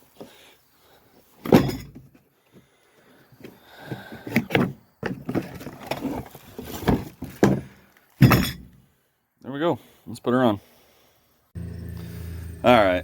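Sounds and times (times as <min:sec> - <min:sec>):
metal parts clanking: 0:08.2 - 0:08.7.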